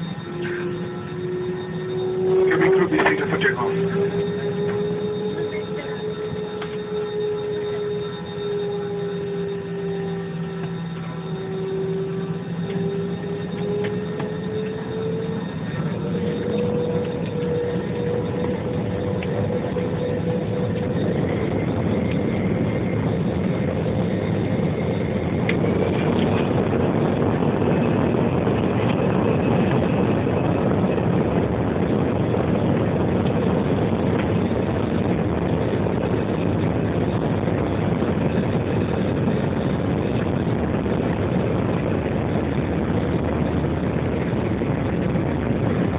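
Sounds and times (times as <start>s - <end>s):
jet engine whine: 0.0s - 45.9s
rushing jet engine noise: 0.0s - 45.9s.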